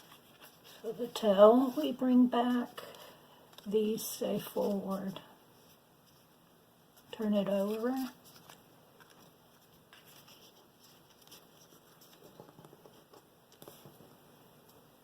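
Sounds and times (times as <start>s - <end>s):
paper card rustling and tapping: 7.5s - 14.2s.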